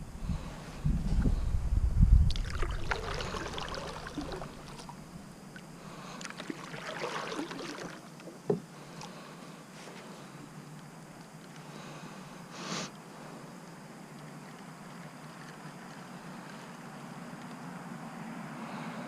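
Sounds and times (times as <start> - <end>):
low rumble: 0.0 - 3.2
kayak paddle splashing in water: 2.3 - 5.0, 6.2 - 8.6.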